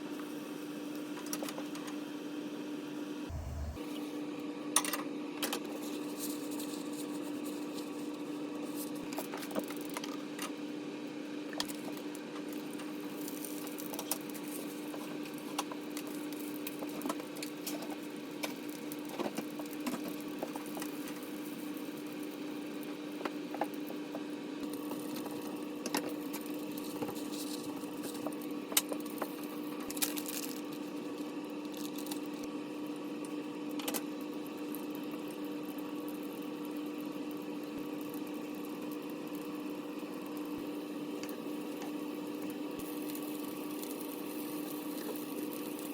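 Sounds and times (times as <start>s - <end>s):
low appliance hum: 3.3s - 4.1s, 23.8s - 45.9s.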